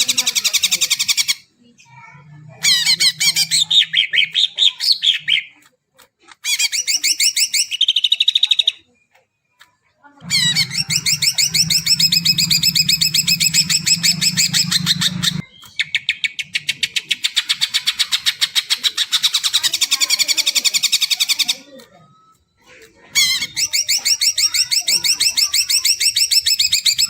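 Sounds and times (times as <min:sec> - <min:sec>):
low hum: 0:10.2 - 0:15.5
bird singing high chirps: 0:10.2 - 0:21.7, 0:23.2 - 0:27.0.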